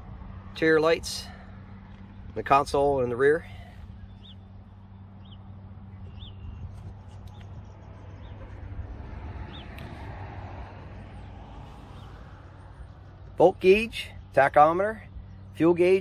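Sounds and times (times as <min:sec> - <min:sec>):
small bird chirping: 0:03.9 - 0:08.4.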